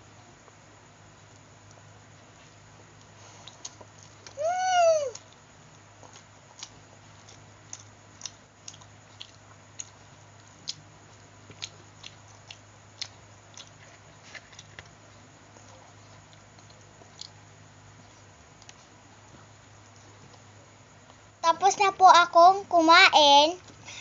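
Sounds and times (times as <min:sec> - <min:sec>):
faint steady hum: 0:00.0 - 0:24.0
person chewing food: 0:03.0 - 0:04.4, 0:05.1 - 0:19.0.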